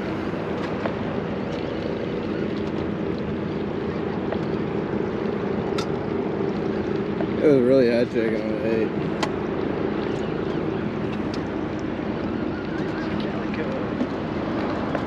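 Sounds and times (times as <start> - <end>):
boat engine humming: 0.0 - 15.0
water noise: 0.0 - 15.0
wind on microphone: 0.0 - 15.0.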